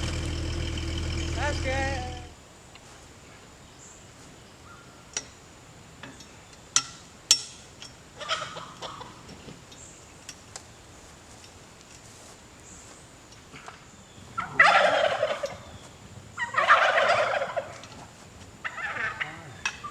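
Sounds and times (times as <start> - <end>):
fowl clucking: 14.4 - 15.7, 16.4 - 17.9, 18.7 - 19.8.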